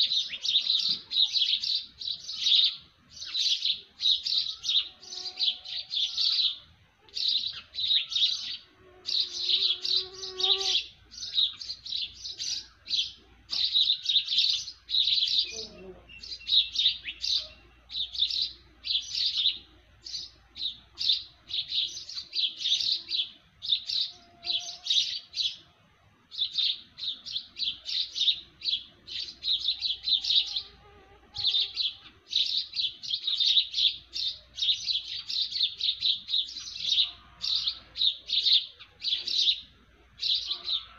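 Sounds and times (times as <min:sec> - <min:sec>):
low bird calls: 0:00.0 - 0:25.5
small birds chirping: 0:00.0 - 0:40.9.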